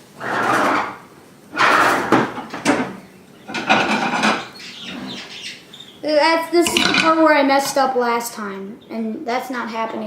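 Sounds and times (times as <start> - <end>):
spatula scraping a frying pan: 0.1 - 1.0.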